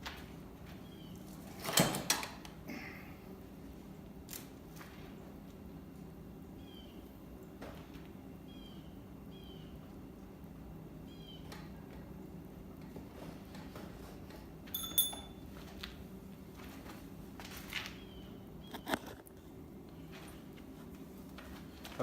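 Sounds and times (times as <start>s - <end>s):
steady low hum: 2.3s - 22.0s
small bird chirping: 8.5s - 9.8s
sharp ringing click: 14.7s - 15.5s.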